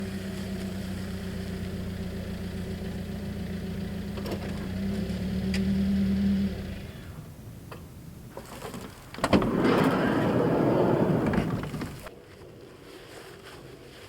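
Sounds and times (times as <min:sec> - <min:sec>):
car engine running: 0:00.0 - 0:07.1.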